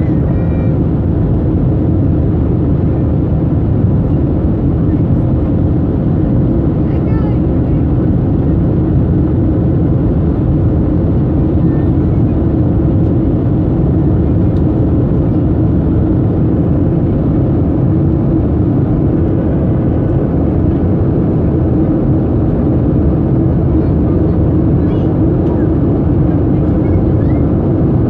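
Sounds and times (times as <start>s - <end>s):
airplane cabin engine rumble: 0.0s - 28.0s.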